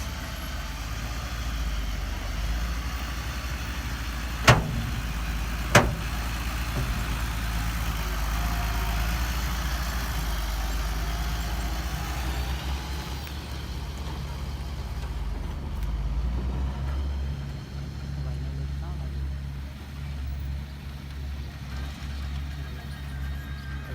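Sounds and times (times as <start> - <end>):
heavy machinery diesel engine: 0.0 - 23.9
sharp click: 4.5 - 7.4.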